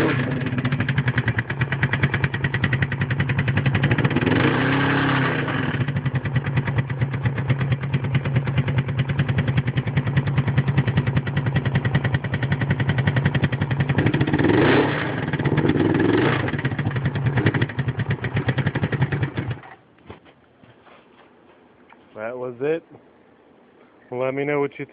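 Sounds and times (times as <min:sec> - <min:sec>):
motorcycle engine idling and revving: 0:00.0 - 0:19.8.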